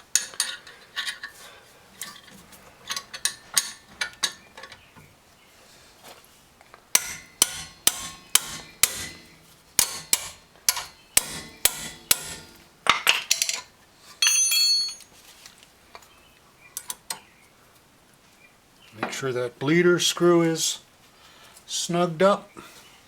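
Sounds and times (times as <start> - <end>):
hammer tapping on metal: 7.0 - 12.6.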